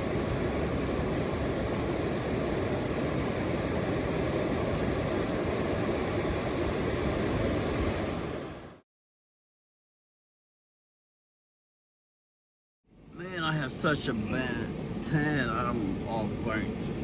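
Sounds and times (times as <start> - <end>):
ocean surf rushing: 0.0 - 8.8.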